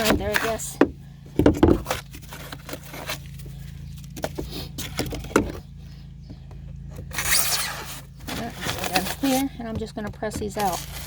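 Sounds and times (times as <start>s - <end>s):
foam scraping and crunching: 0.0s - 0.8s, 1.6s - 5.4s, 7.0s - 11.0s.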